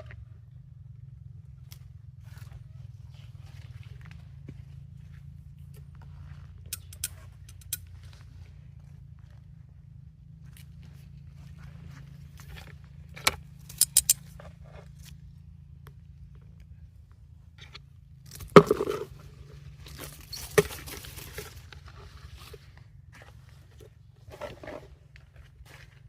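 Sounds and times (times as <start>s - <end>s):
sharp metallic clinks: 13.6s - 14.3s.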